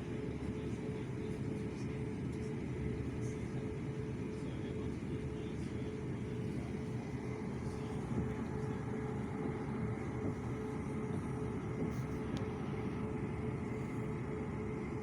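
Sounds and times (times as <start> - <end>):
constant hum: 0.0 - 15.0
train rumble from inside: 0.0 - 15.0.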